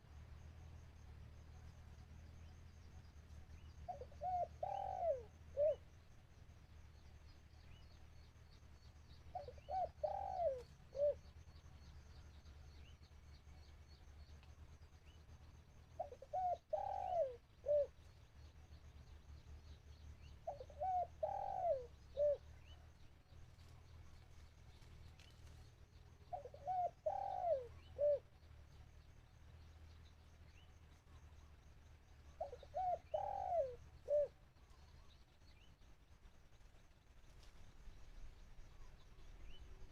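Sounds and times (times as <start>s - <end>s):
dove cooing: 3.9s - 5.8s, 9.3s - 11.3s, 16.0s - 18.0s, 20.4s - 22.7s, 26.3s - 28.3s, 32.4s - 35.0s.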